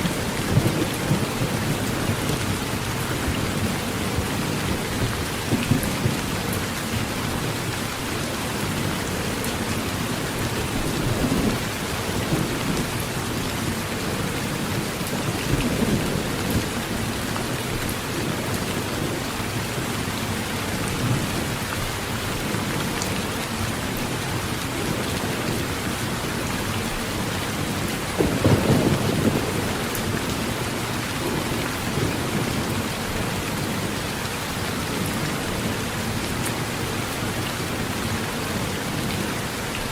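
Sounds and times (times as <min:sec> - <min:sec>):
heavy rain on a metal roof: 0:00.0 - 0:39.9
low thunder rumbles: 0:27.3 - 0:34.0.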